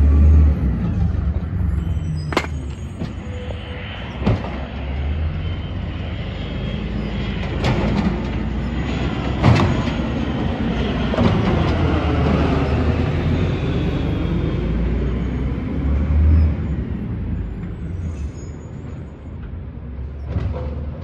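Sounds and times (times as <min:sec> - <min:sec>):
loud metal clanks and bangs: 0:02.3 - 0:03.2.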